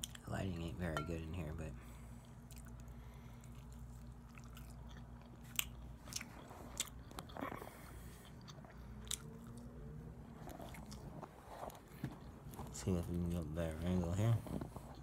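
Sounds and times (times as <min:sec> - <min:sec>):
low steady hum: 0:00.0 - 0:15.0
person chewing chicken: 0:02.1 - 0:12.7.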